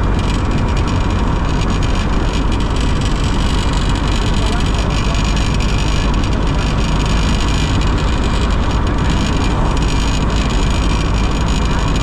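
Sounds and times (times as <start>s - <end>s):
road noise: 0.0s - 12.0s
vehicle engine rumble: 0.0s - 12.0s.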